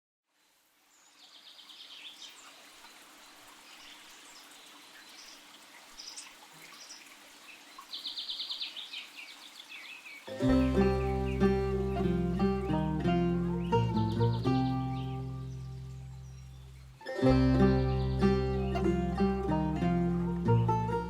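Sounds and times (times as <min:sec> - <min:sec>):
faint steady hiss: 0:00.3 - 0:21.0
birds singing and trilling: 0:03.6 - 0:19.9
music: 0:10.3 - 0:21.0.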